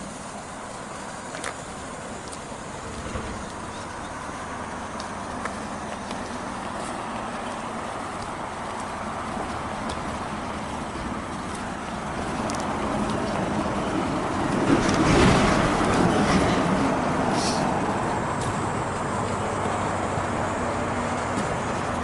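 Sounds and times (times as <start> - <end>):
wind and road noise: 0.0 - 22.0
motorcycle engine running: 1.6 - 13.8.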